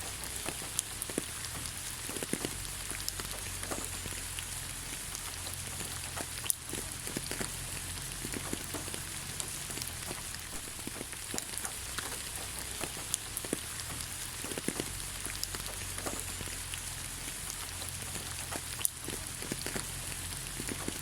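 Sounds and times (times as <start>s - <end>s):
rain hissing: 0.0s - 21.0s
raindrops ticking: 0.0s - 21.0s.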